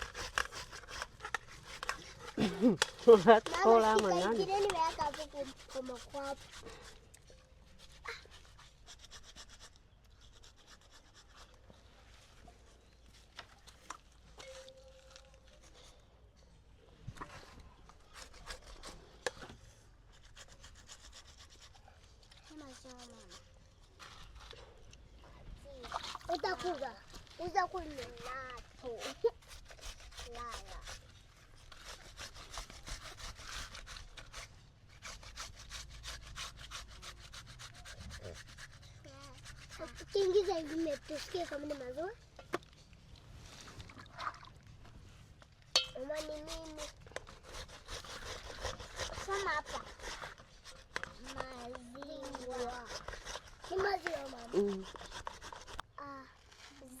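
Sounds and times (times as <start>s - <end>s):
vegetables grated on metal grater: 0.0s - 7.0s, 27.4s - 42.2s, 45.8s - 55.8s
quick rubbing strokes: 0.0s - 16.0s, 17.2s - 24.8s, 25.6s - 42.4s, 45.7s - 57.0s.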